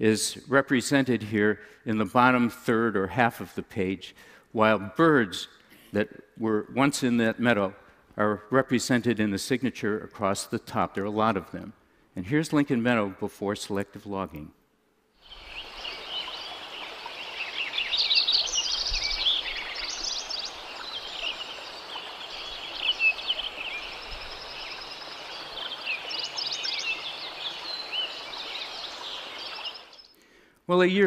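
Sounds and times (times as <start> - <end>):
birds singing and calling: 15.2 - 30.2
mountain stream rushing: 15.3 - 29.8.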